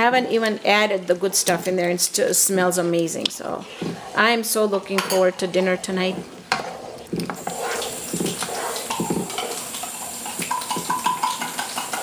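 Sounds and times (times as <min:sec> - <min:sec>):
spatula scraping a pot: 0:03.5 - 0:12.0
oil sizzling: 0:06.0 - 0:12.0
spatula knocking against pan: 0:08.1 - 0:09.5, 0:10.4 - 0:12.0.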